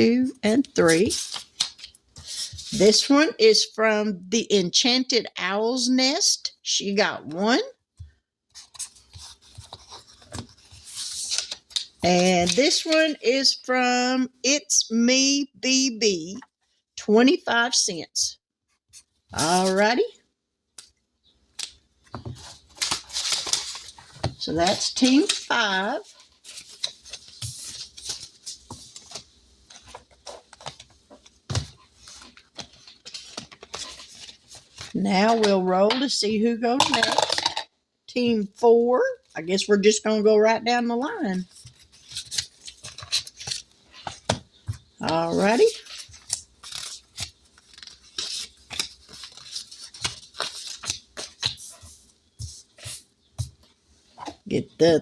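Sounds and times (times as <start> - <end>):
paper rustling: 0.8 - 3.0, 8.5 - 13.2, 21.6 - 35.6, 41.5 - 54.4.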